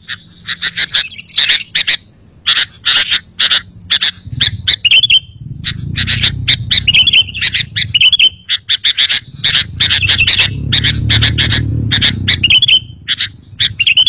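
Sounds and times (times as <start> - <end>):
bird chattering and chirping: 0.0 - 14.0
low rumble: 3.8 - 8.5, 9.2 - 14.0.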